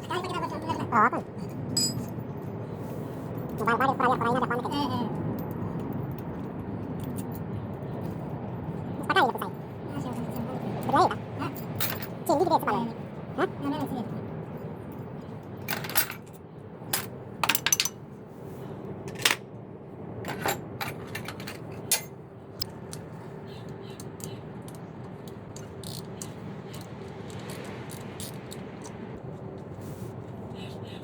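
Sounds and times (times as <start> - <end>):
steady low hum: 0.0 - 31.0
hand tools clinking on metal: 1.4 - 2.2, 10.1 - 12.2, 15.5 - 18.0, 20.3 - 22.2.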